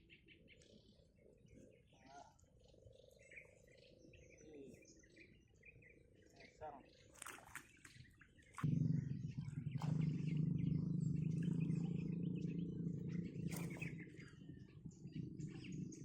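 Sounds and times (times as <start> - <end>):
birds chirping: 0.0 - 16.0
steady low rumble: 8.6 - 16.0.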